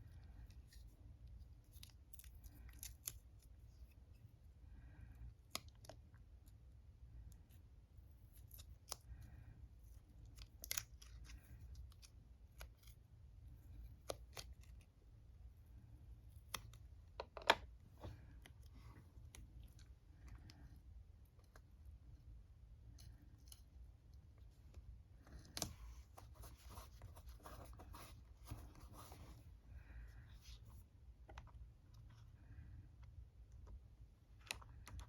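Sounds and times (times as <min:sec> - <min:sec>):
paint set being handled: 0:24.6 - 0:32.2.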